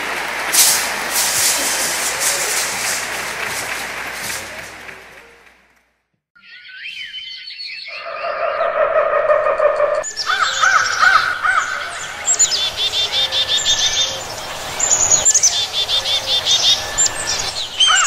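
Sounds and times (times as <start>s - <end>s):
birds chirping: 6.4s - 18.0s.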